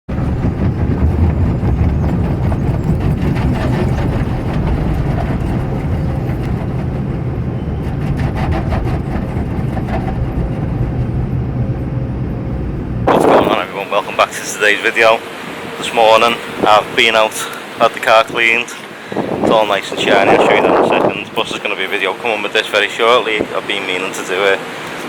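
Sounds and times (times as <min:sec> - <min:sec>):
vehicle rumbling in motion: 0:00.0 - 0:25.0.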